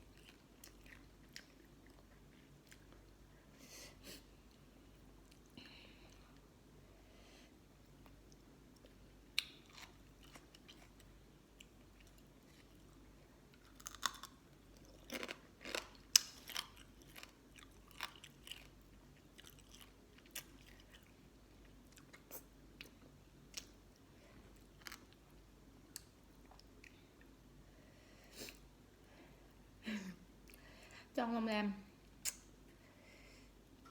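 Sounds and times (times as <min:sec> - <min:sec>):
person chewing crunchy food: 0:00.0 - 0:03.2, 0:07.9 - 0:25.3.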